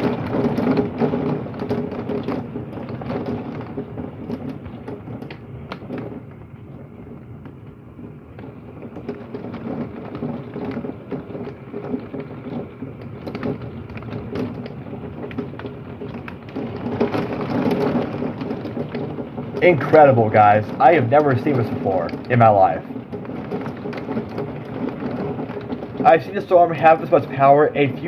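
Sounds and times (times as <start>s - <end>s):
hailstones ticking: 0.0s - 28.0s
heavy rain through window: 0.0s - 28.0s.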